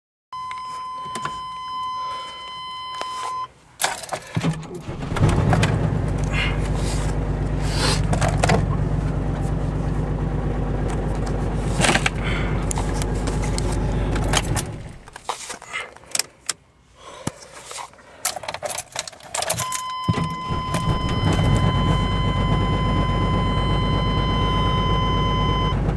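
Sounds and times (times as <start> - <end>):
high beep: 0.3 - 3.5, 19.6 - 25.8
car engine cranking and idling: 3.6 - 16.8, 17.9 - 25.9.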